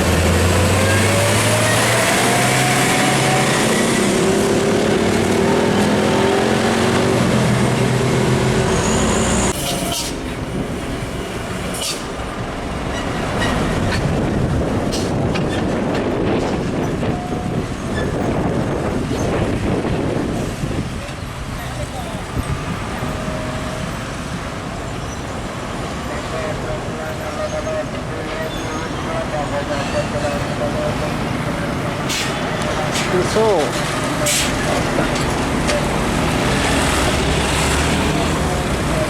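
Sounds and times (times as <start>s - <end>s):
deep truck engine drone: 0.0s - 9.6s
traffic rumble: 0.0s - 39.0s.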